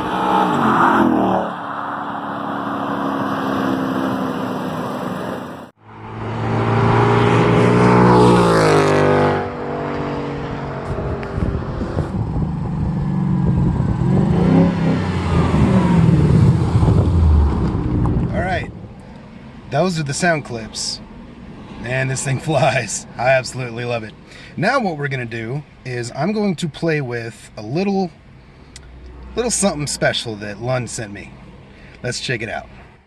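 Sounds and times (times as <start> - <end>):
car passing by: 0.0 - 12.2
car engine full-throttle pull: 10.8 - 18.3.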